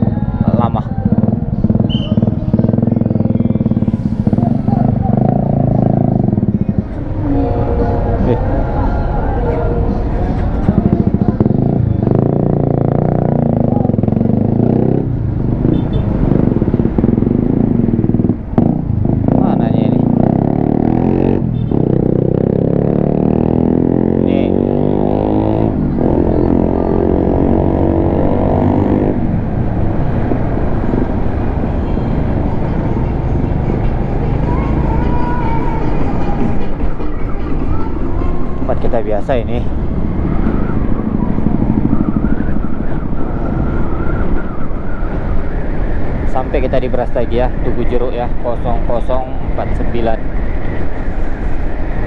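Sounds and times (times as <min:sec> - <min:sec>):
motorcycle engine running: 0:00.0 - 0:45.0
wind rumbling on microphone: 0:25.7 - 0:52.0.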